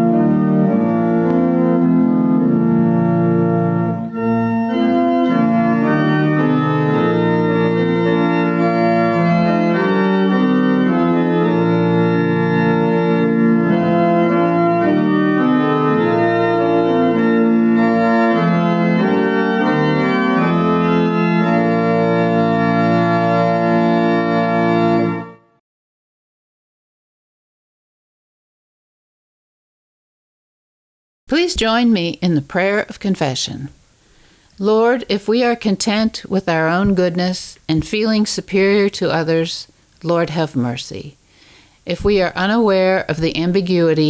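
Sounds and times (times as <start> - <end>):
organ playing sustained chords: 0.0 - 25.5.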